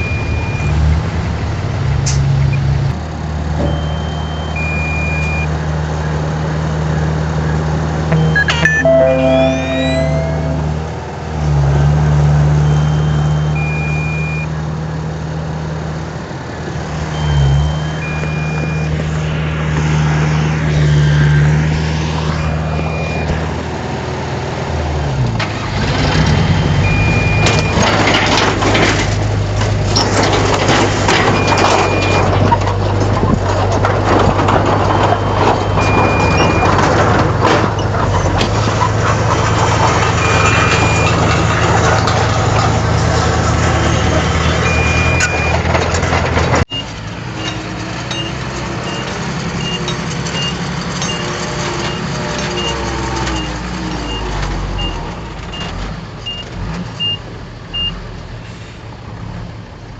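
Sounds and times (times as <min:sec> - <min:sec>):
bulldozer diesel engine: 0:00.0 - 0:59.9
short high beeps: 0:08.1 - 0:10.9
clatter and scraping: 0:27.4 - 0:46.7.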